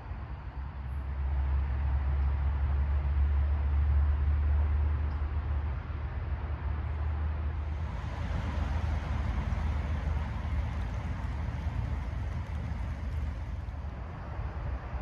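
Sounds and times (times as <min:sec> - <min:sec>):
low rumble: 0:07.4 - 0:15.0.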